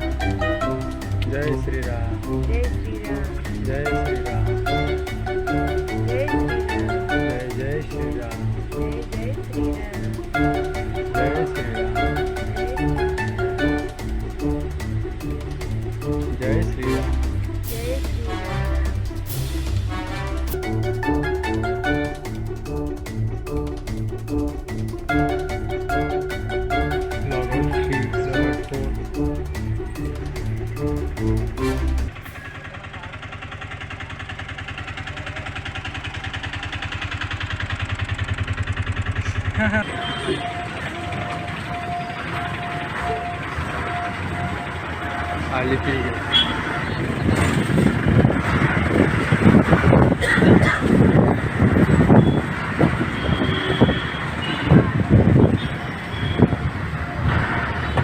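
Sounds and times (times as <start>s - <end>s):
music: 0.0s - 32.4s, 40.4s - 48.2s
small vehicle engine pulsing: 0.0s - 58.0s.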